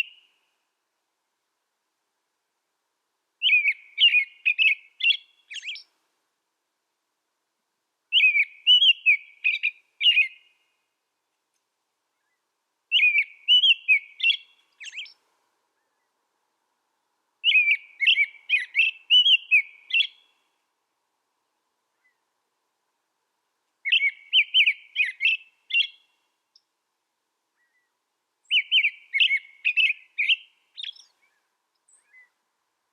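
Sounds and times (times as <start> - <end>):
songbird chirping and whistling: 0.0 - 0.4, 3.4 - 6.0, 8.1 - 10.7, 12.1 - 15.2, 17.4 - 20.4, 23.8 - 26.7, 27.6 - 32.4.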